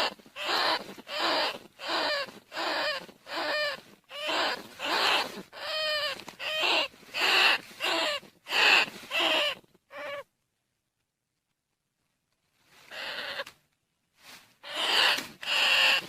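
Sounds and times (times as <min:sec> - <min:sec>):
rat squeaks: 0:00.0 - 0:10.2, 0:12.9 - 0:13.5, 0:14.6 - 0:16.0.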